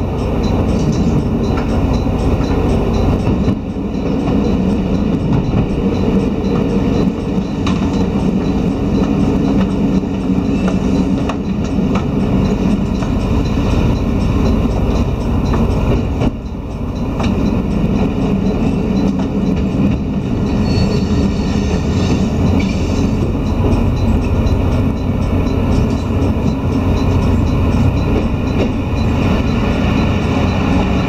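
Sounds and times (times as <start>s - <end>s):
wheels clicking over rail joints: 0.0s - 20.7s
diesel railcar rumbling: 0.0s - 31.0s.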